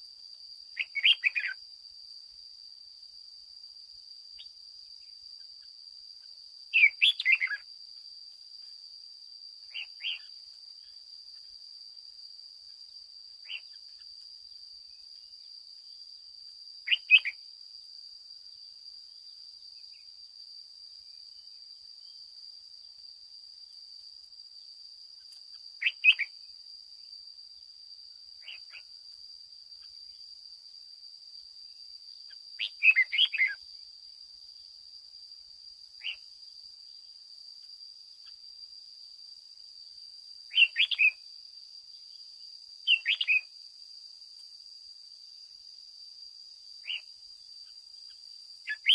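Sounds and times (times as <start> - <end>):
bird singing chirpy phrases: 0.8 - 1.6, 6.7 - 7.6, 25.8 - 26.3, 32.6 - 33.6, 40.5 - 41.2, 42.9 - 43.4, 48.7 - 48.9.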